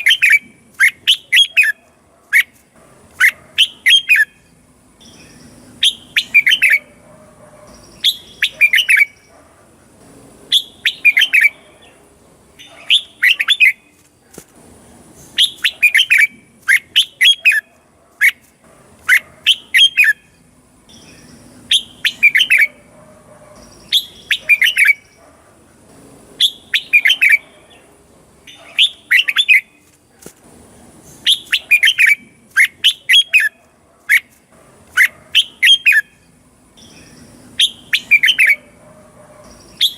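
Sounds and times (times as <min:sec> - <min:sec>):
bird singing whistled phrases: 0:00.0 - 0:01.8, 0:05.0 - 0:06.9, 0:07.9 - 0:09.3, 0:10.5 - 0:11.6, 0:15.4 - 0:17.6, 0:20.9 - 0:22.7, 0:23.8 - 0:25.1, 0:31.2 - 0:33.6, 0:36.8 - 0:38.7, 0:39.7 - 0:39.9.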